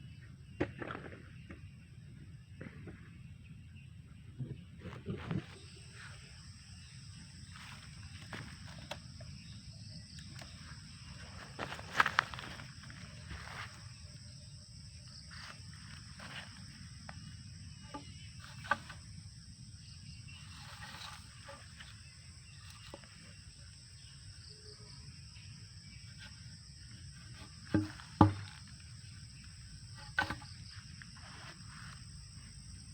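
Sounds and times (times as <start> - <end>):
loud knocks: 27.4 - 28.6.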